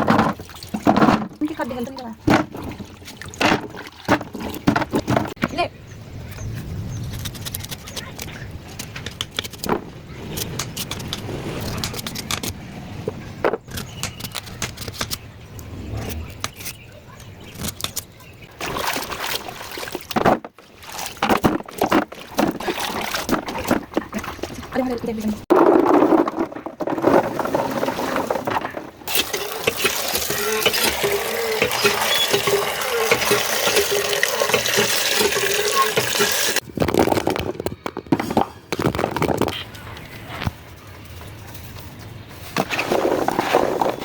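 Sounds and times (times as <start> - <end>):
water splashing into a vessel: 0.0 - 5.4, 18.5 - 24.8, 25.8 - 37.2
small knocks and clatter: 0.0 - 5.6, 19.9 - 39.6.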